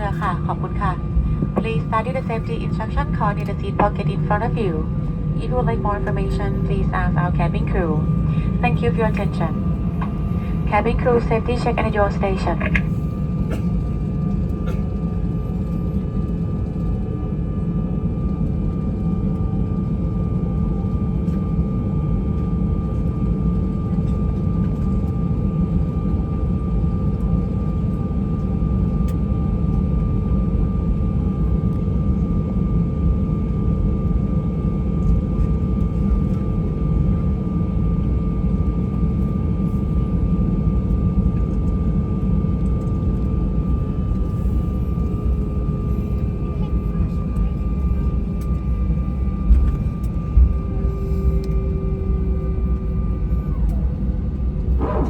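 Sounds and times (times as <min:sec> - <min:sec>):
jet engine whining tones: 0:00.0 - 0:15.4, 0:34.2 - 0:55.0
jet engine low rumble: 0:00.0 - 0:55.0.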